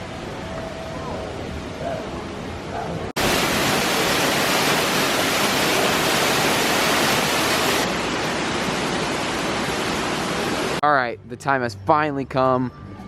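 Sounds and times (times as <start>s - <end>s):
rush of falling water: 3.1s - 10.8s.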